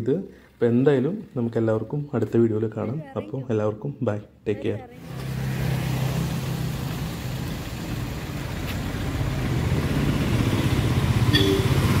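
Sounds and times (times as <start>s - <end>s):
short high beep: 11.3s - 12.0s.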